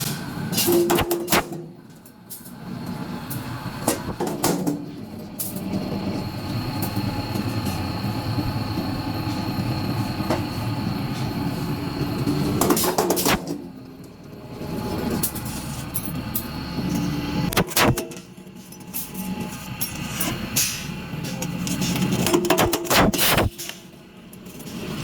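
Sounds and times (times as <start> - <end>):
hydraulic press humming and whining: 0.0 - 25.0.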